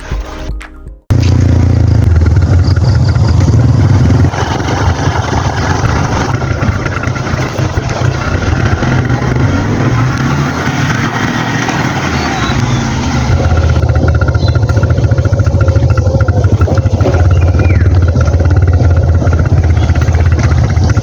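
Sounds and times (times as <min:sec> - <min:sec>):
music: 0:00.0 - 0:01.1
small engine running: 0:01.1 - 0:21.0.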